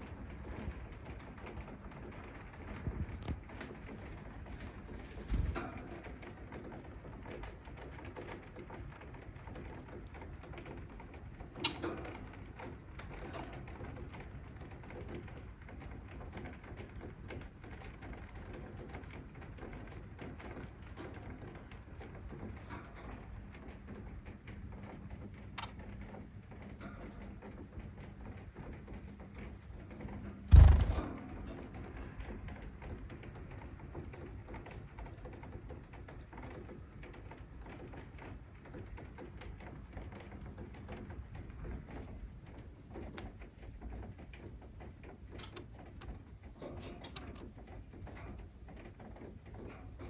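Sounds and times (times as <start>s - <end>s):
soft rain-like noise: 0.0s - 25.4s.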